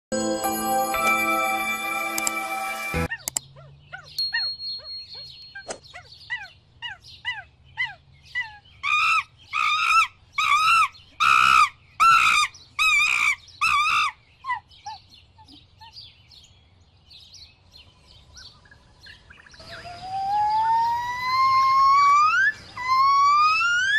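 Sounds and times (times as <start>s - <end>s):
drawn-out repeated bird calls: 3.0s - 16.1s, 18.2s - 23.9s
bird chirps: 3.0s - 23.9s
faint bird twittering: 3.1s - 13.8s.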